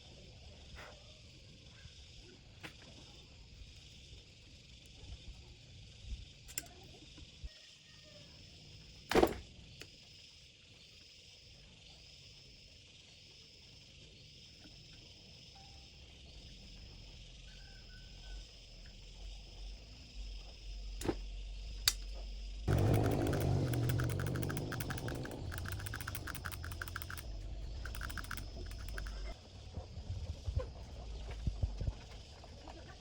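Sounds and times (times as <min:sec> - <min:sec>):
insects chirping: 0:09.7 - 0:29.7
sharp clicks or knocks: 0:22.7 - 0:29.2.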